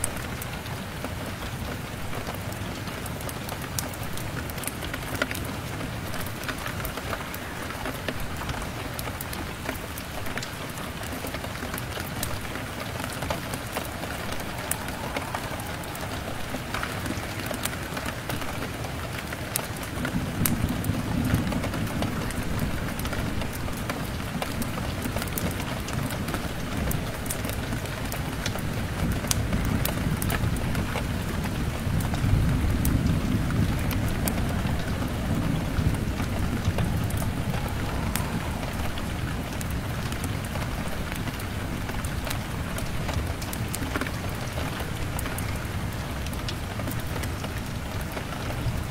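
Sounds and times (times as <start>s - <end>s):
rain pattering on a window: 0.0s - 48.9s
wood fire crackling: 3.8s - 29.5s, 30.2s - 48.9s
thunder rumbling: 5.0s - 27.7s, 28.3s - 43.8s.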